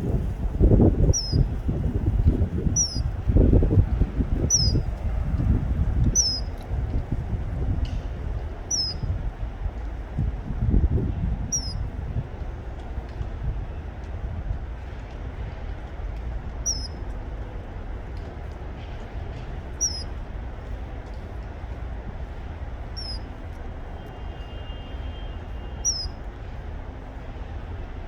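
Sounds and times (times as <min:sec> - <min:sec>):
steady low rumble: 0:00.0 - 0:28.0
kingfisher whistling calls: 0:01.1 - 0:01.5, 0:02.8 - 0:03.1, 0:04.5 - 0:04.9, 0:06.2 - 0:06.6, 0:08.7 - 0:09.1, 0:11.5 - 0:11.8, 0:16.6 - 0:17.0, 0:19.8 - 0:20.1, 0:23.0 - 0:23.3, 0:25.1 - 0:26.2.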